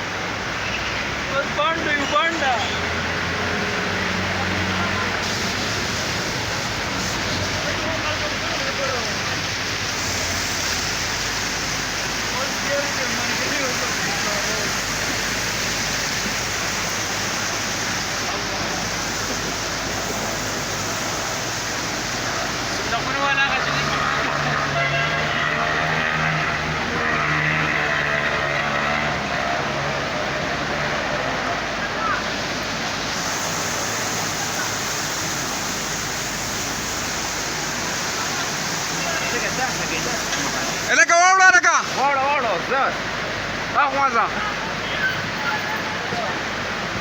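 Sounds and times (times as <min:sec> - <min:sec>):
floodwater rushing: 0:00.0 - 0:47.0.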